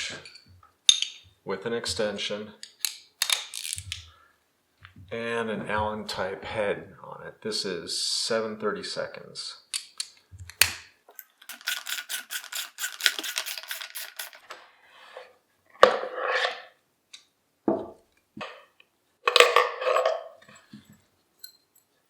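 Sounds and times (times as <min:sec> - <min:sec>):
ratchet wrench clicking: 0:11.5 - 0:14.4.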